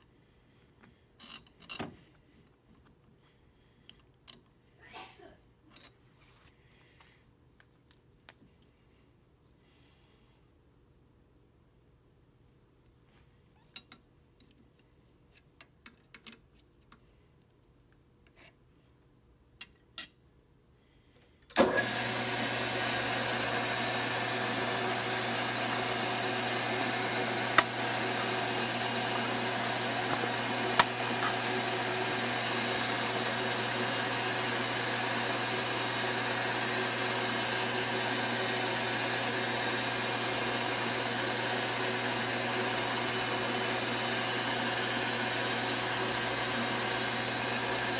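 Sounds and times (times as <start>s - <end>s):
lathe motor humming: 21.6s - 47.9s.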